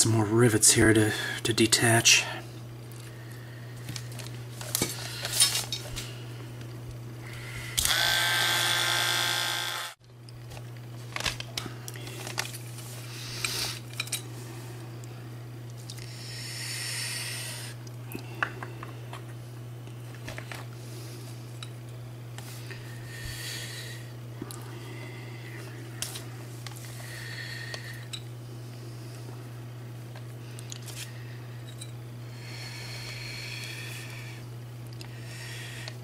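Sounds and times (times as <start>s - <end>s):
steady low hum: 0.0s - 36.0s
small electric drill running: 7.7s - 10.0s.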